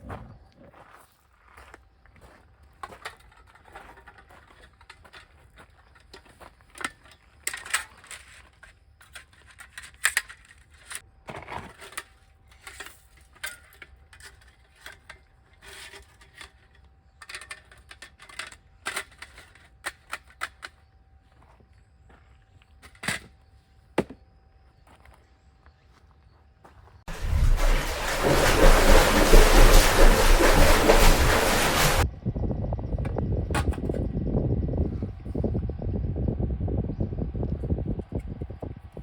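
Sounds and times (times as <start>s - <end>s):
objects clicking and knocking: 2.9s - 20.8s.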